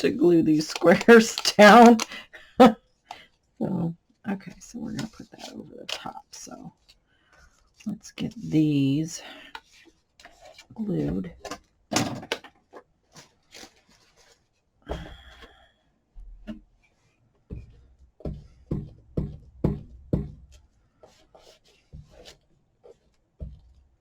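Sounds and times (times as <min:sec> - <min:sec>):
paper rustling: 0:00.5 - 0:02.2, 0:12.6 - 0:14.6.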